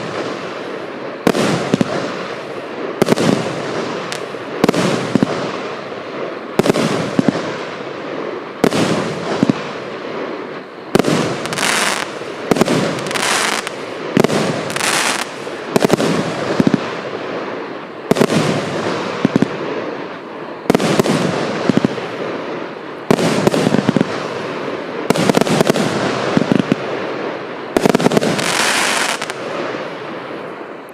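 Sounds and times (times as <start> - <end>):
high hiss: 0.0 - 30.9.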